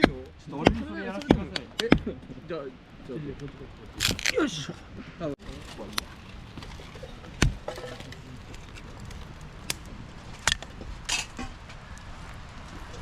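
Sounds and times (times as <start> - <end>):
firewood being chopped: 0.0 - 2.4, 3.4 - 4.5, 5.4 - 11.8.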